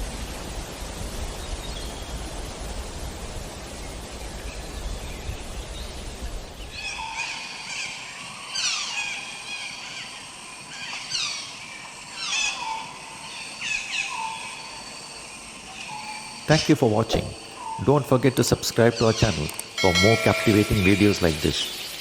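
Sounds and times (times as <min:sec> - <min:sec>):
rushing outdoor background: 0:00.0 - 0:22.0
birds calling: 0:04.5 - 0:22.0.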